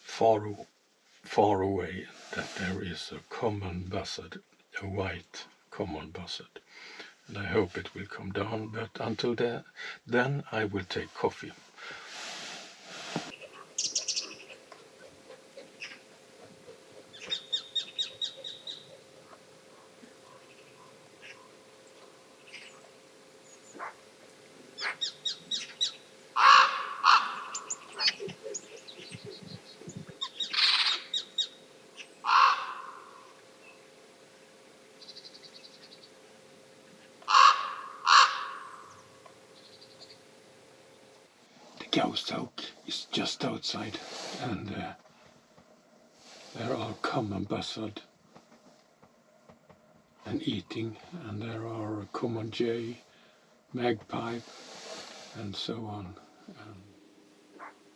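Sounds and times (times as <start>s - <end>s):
birds chirping: 13.3s - 41.3s
crow harsh calls: 13.4s - 36.3s, 36.9s - 40.4s.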